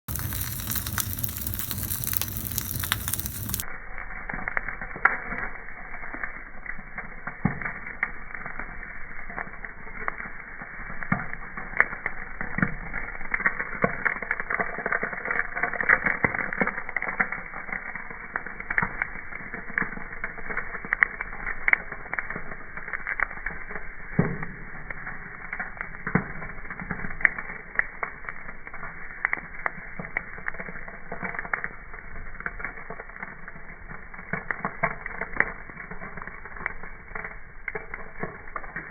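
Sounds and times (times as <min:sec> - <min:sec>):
fire hissing: 0:00.0 - 0:06.6
campfire snaps and pops: 0:00.0 - 0:38.9.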